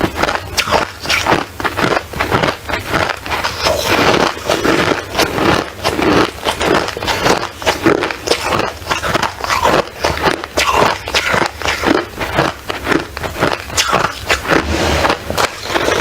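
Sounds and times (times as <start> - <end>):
ice crunching: 12.9 - 16.0.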